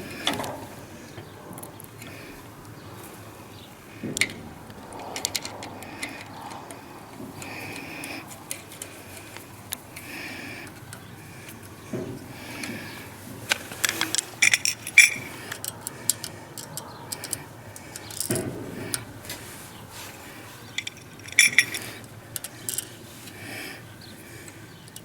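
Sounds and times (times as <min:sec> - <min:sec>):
metal tools clicking and clinking: 0:05.0 - 0:06.8, 0:13.5 - 0:19.1, 0:20.7 - 0:23.0.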